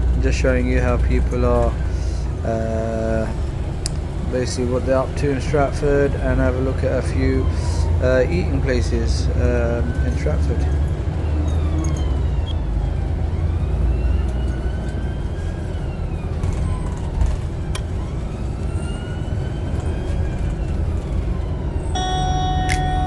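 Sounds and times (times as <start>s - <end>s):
street traffic rumble: 0.0s - 23.0s
faint siren wailing: 6.7s - 23.0s.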